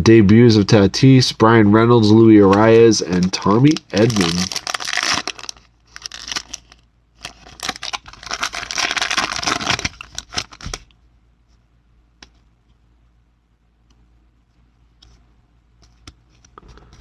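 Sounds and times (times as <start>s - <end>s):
foil wrapper tearing and crinkling: 3.2s - 10.9s.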